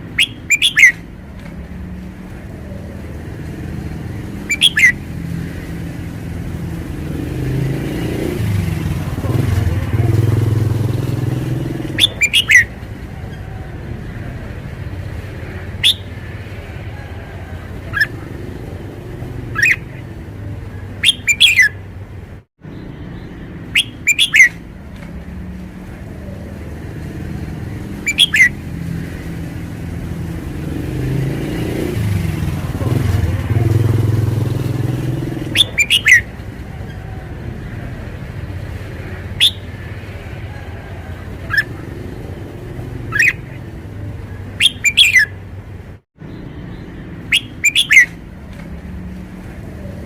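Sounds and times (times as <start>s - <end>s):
bird calling sharp notes: 0.0s - 1.1s, 3.7s - 8.3s, 9.2s - 13.6s, 15.4s - 21.9s, 23.6s - 24.7s, 27.4s - 29.4s, 32.6s - 38.1s, 38.8s - 45.4s, 47.2s - 48.2s
low rumble of traffic: 0.0s - 50.0s.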